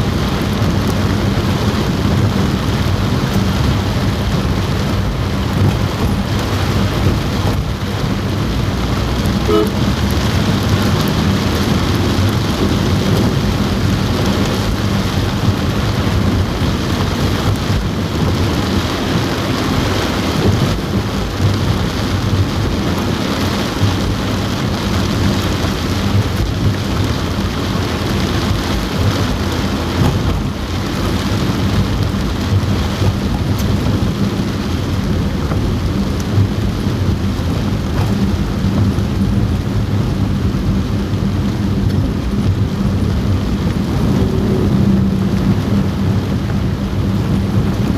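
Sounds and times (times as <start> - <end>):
heavy rain on a car roof: 0.0 - 47.9
low rumble: 0.0 - 47.9.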